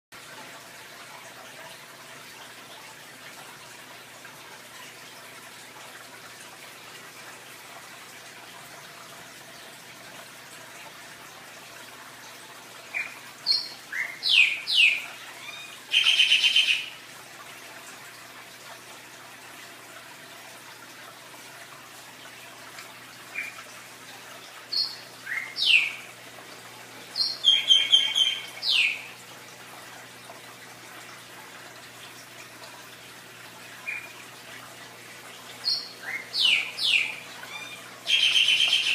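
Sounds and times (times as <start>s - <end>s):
running water hiss: 0.2s - 38.9s
bird chirping: 13.0s - 16.9s, 24.7s - 26.0s, 27.2s - 29.0s, 35.6s - 38.9s.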